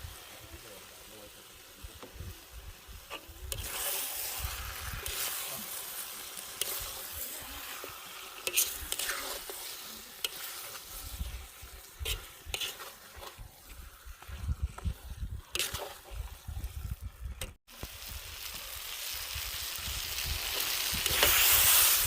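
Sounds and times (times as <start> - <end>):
food sizzling in a pot: 0.0 - 22.0
utensil scraping a pot: 3.1 - 17.6.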